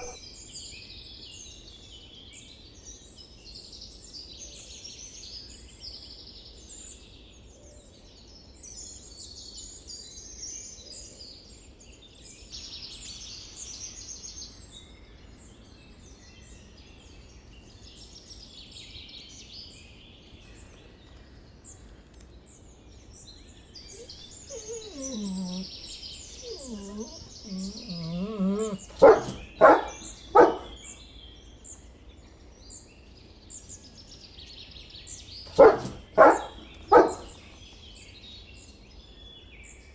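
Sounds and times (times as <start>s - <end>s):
birds chirping: 23.9s - 31.0s, 35.5s - 37.6s
dog howling call: 24.0s - 30.8s, 35.5s - 37.4s
dog barking: 24.0s - 30.9s, 35.5s - 37.5s.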